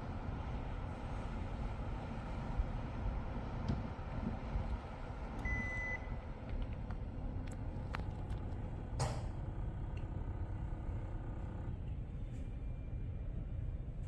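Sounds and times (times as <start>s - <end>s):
air conditioner beep: 5.4s - 6.1s.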